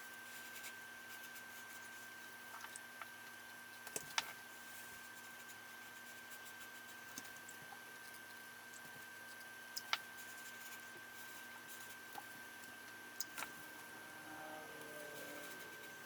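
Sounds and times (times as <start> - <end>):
faint high-pitched whine: 0.0 - 16.0.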